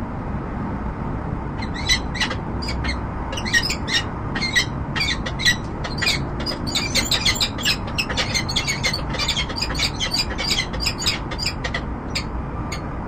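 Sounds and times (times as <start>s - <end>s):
low hum of city noise: 0.0s - 13.0s
falcon high-pitched calls: 1.6s - 12.8s.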